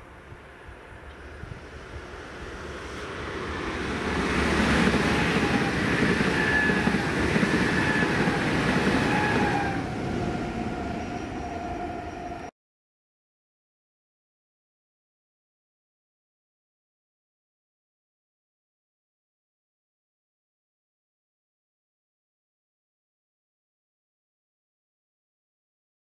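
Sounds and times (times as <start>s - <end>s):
train passing at speed: 0.0s - 12.5s.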